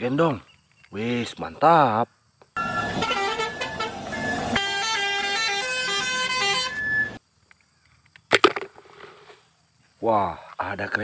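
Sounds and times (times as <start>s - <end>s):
truck musical horn: 2.6s - 7.2s.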